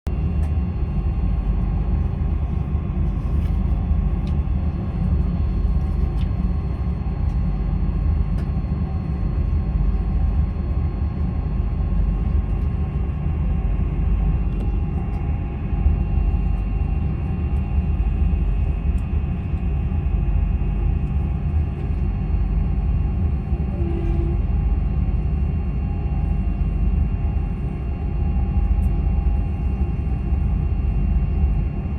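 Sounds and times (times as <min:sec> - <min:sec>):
moving train rumble: 0:20.7 - 0:31.9.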